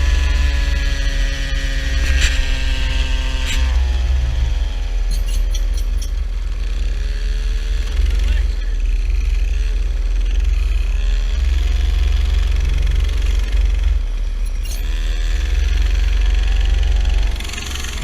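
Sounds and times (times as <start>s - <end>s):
small engine revving: 0.0s - 18.0s.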